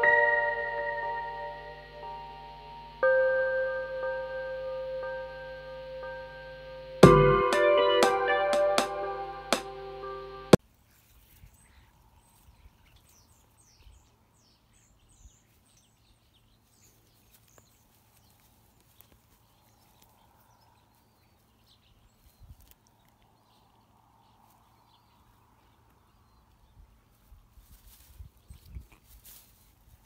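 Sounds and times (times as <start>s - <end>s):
soft low thumps: 3.0s - 9.8s.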